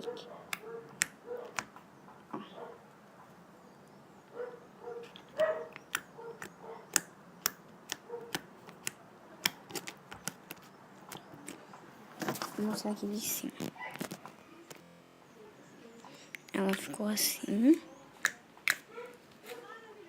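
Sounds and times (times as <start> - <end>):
slime clicking and popping: 18.2 - 18.8.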